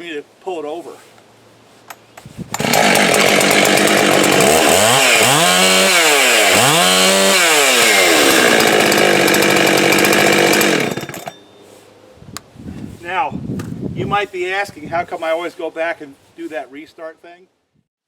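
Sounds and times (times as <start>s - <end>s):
chainsaw revving and idling: 2.6s - 11.3s.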